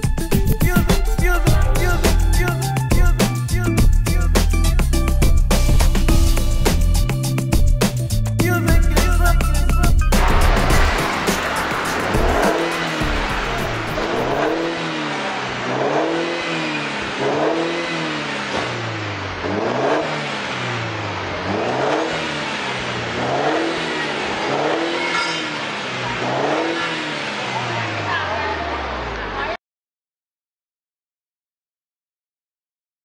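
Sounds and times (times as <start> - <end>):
car engine revving in blips: 8.7 - 29.5.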